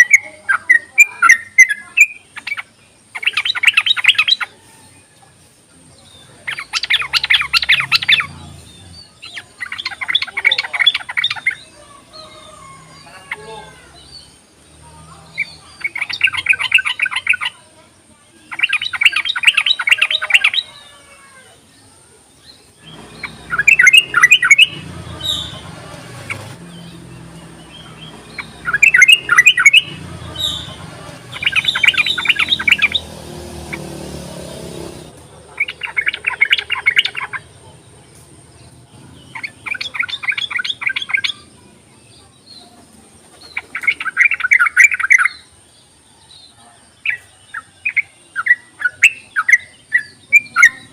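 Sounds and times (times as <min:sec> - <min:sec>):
bird chattering: 0:00.0 - 0:04.6, 0:06.3 - 0:14.4, 0:15.2 - 0:17.6, 0:18.4 - 0:20.8, 0:22.6 - 0:41.9, 0:43.4 - 0:45.6.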